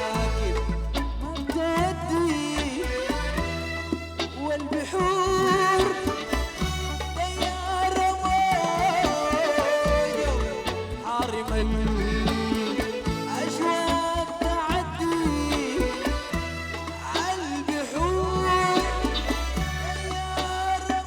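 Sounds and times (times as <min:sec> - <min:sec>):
live band music: 0:00.0 - 0:21.0
wavering melody line: 0:00.0 - 0:21.0.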